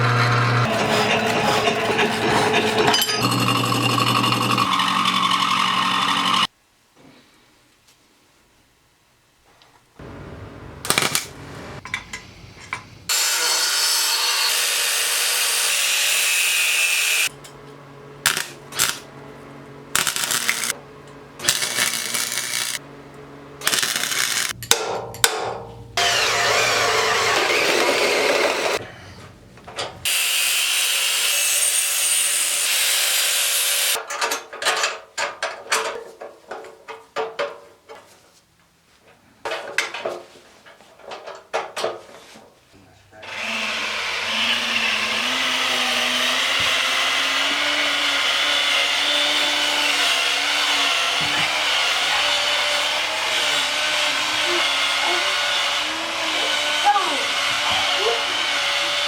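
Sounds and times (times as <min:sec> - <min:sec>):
power tools whirring: 0:00.0 - 0:06.5, 0:18.2 - 0:19.1, 0:19.9 - 0:20.8, 0:21.4 - 0:22.8, 0:23.6 - 0:24.6, 0:26.0 - 0:28.8.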